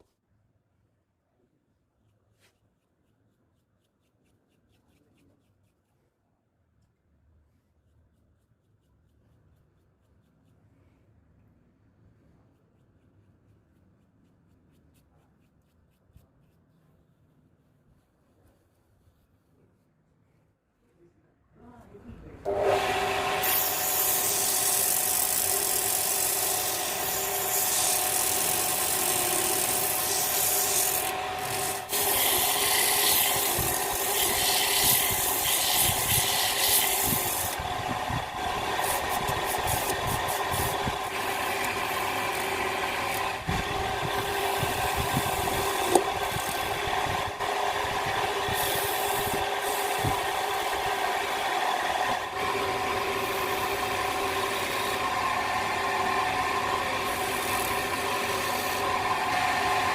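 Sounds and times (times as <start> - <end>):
wood lathe motor hum: 22.5 - 59.9
rough rubbing on spinning wood: 23.4 - 59.9.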